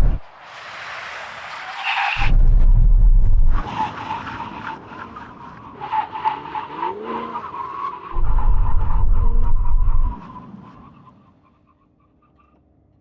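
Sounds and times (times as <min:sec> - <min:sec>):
loud low rumble: 0:00.0 - 0:00.3, 0:02.2 - 0:03.6, 0:08.2 - 0:10.2.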